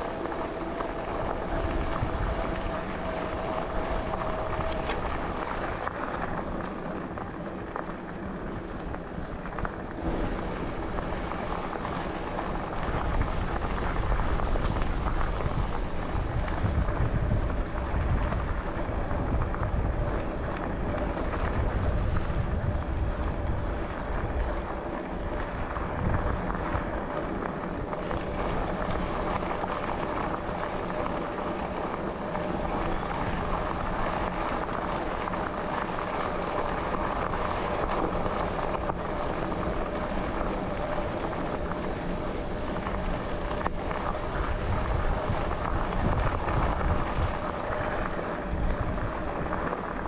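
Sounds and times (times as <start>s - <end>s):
bicycle tyre rumble: 0.0s - 50.0s
faint steady whine: 0.0s - 50.0s
wind buffeting microphone: 0.0s - 50.0s.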